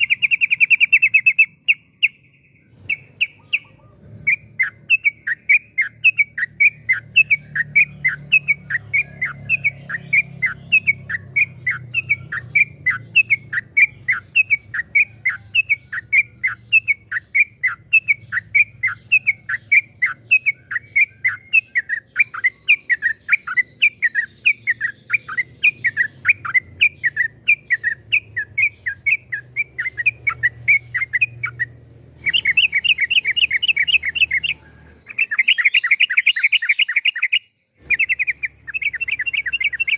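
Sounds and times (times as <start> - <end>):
bird singing downward chirps: 0.0 - 39.9.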